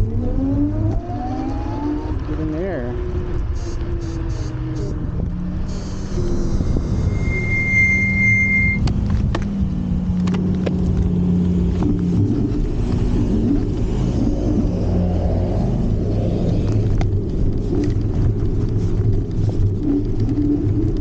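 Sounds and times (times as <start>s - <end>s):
wind and tyres rumbling: 0.0s - 21.0s
high-pitched squeal: 5.6s - 8.8s.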